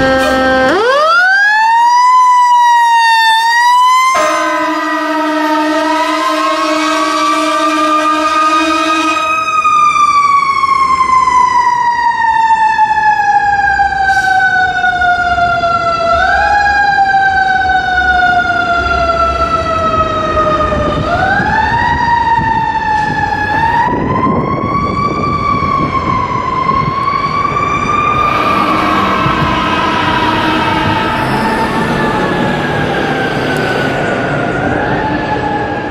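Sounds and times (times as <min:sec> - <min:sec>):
low horn blast: 0:00.0 - 0:01.1, 0:04.1 - 0:09.4, 0:27.7 - 0:35.1
fire engine siren wailing: 0:00.0 - 0:35.9
truck engine rumble: 0:13.2 - 0:35.9.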